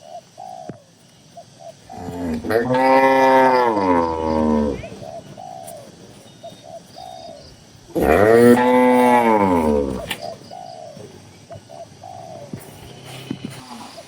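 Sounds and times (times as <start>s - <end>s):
pigeon cooing: 1.9s - 14.0s
cow mooing: 2.0s - 4.9s, 8.0s - 10.2s.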